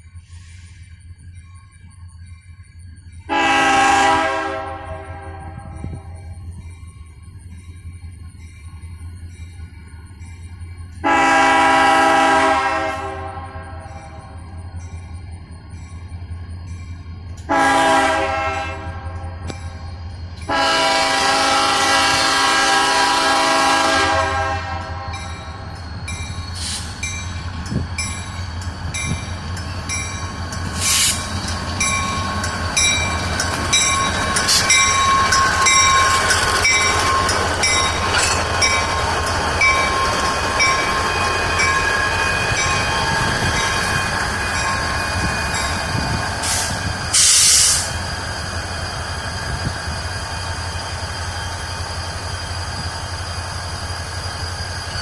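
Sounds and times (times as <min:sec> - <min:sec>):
train engine drone: 0:00.0 - 0:55.0
locomotive air horn: 0:03.3 - 0:06.0, 0:11.0 - 0:14.0, 0:17.5 - 0:19.2, 0:20.5 - 0:25.2
clanks from train cars: 0:13.8 - 0:55.0
wheel squeal: 0:25.6 - 0:55.0.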